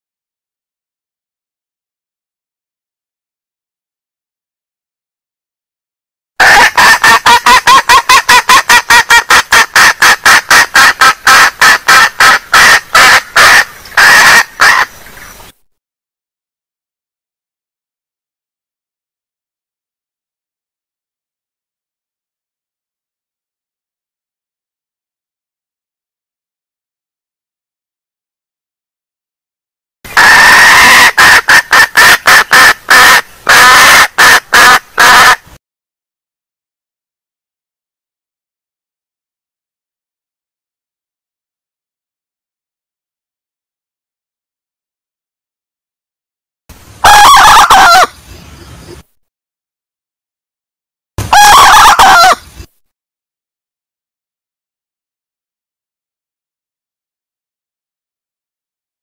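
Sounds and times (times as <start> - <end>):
hen clucking: 6.4 - 15.0, 30.2 - 35.4, 47.0 - 48.2, 51.3 - 52.4.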